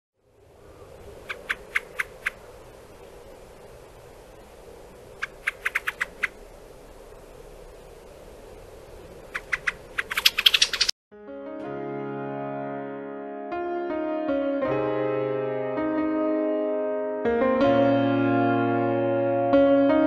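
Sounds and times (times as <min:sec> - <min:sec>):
faint steady hum: 0:00.2 - 0:10.0
bird clicking calls: 0:01.2 - 0:02.6, 0:05.1 - 0:06.4, 0:09.3 - 0:10.9.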